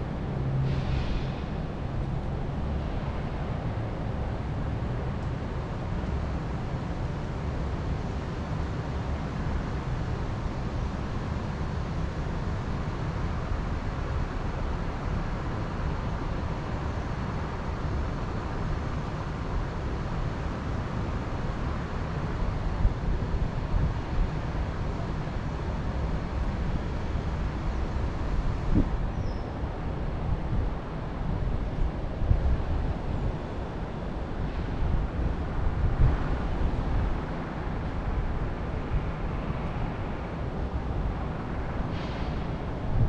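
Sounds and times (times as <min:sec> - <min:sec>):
steady wind: 0:00.0 - 0:43.0
wind buffeting microphone: 0:28.2 - 0:43.0.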